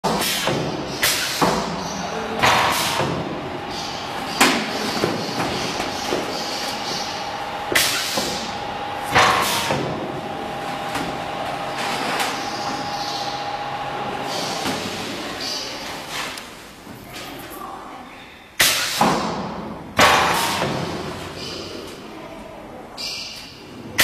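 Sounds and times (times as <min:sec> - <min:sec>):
machinery hum: 0:00.0 - 0:17.0.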